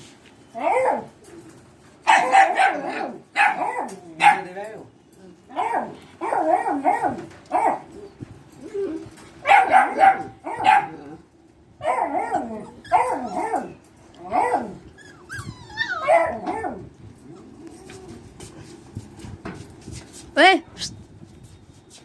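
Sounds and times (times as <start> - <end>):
dog barking and yipping: 2.0 - 4.5, 5.6 - 7.9, 9.4 - 11.0, 11.8 - 14.8, 15.7 - 16.8
dog whining: 7.9 - 9.2, 11.9 - 18.2.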